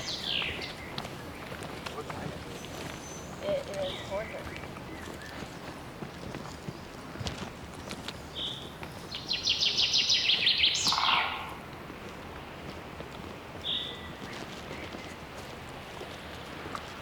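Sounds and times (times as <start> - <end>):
songbird trilling: 0.0 - 1.4, 2.5 - 5.4, 8.4 - 11.6.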